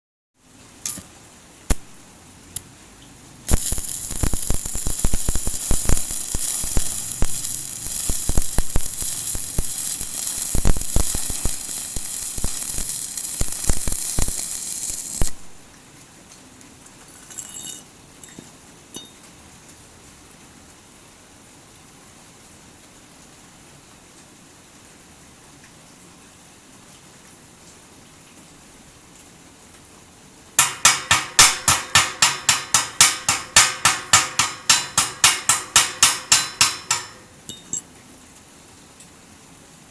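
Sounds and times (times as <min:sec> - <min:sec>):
welding arc crackling: 0:00.8 - 0:01.1, 0:01.7 - 0:02.0, 0:03.5 - 0:15.7, 0:30.6 - 0:37.3
electrode tapping metal: 0:00.9 - 0:01.1, 0:01.7 - 0:02.0, 0:03.5 - 0:15.6, 0:30.6 - 0:37.8
faint metal clinks: 0:17.1 - 0:19.2, 0:36.5 - 0:38.0.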